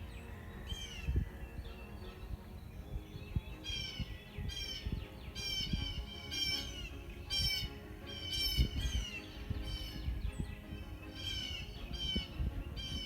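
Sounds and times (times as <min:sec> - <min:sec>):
songbird harsh buzzy calls: 0:03.6 - 0:13.0.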